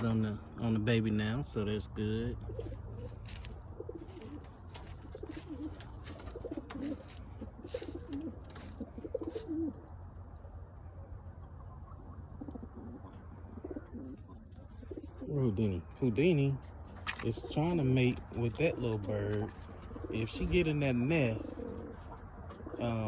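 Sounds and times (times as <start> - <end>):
pigeons cooing: 2.2 - 23.0
sharp clicks and scuffs: 4.2 - 9.2.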